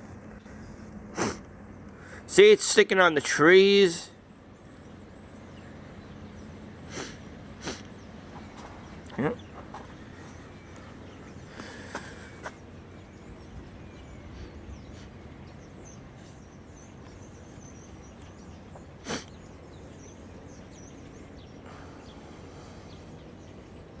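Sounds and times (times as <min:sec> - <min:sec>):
steady low background noise: 0:00.0 - 0:24.0
faint bird chirps: 0:04.5 - 0:24.0.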